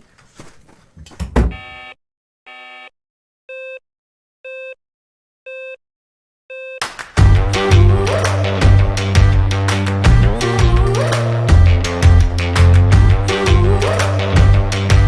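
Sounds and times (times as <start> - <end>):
loud music: 7.1 - 15.0.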